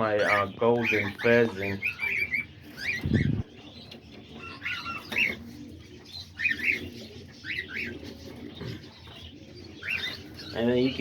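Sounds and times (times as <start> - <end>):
cockatiels chirping: 0.0 - 11.0
doves cooing: 0.0 - 11.0.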